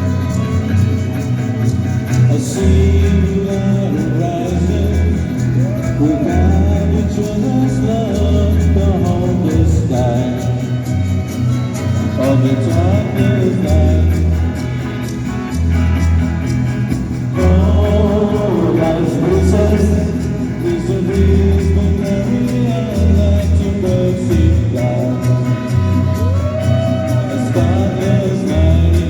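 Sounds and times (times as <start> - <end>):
person singing: 0.0 - 16.0, 17.1 - 29.0
rock band playing live: 0.0 - 29.0.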